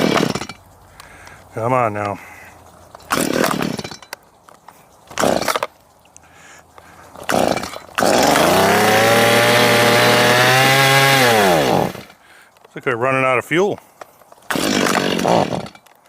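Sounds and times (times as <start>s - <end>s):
chainsaw starting and running: 0.0s - 0.6s, 3.1s - 4.0s, 5.2s - 5.7s, 7.2s - 12.2s, 14.5s - 15.9s.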